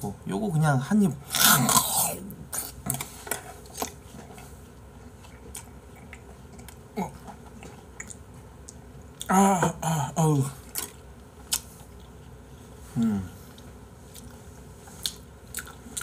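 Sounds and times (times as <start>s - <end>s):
chewing clicks and squelches: 5.2s - 6.8s, 7.5s - 9.3s, 15.0s - 16.0s.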